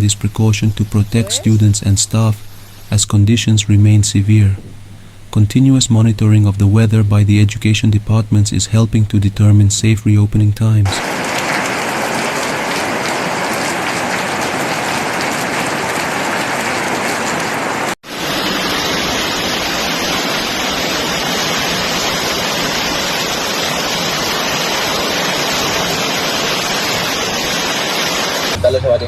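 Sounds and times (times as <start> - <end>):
heavy rain falling: 10.9 - 28.7.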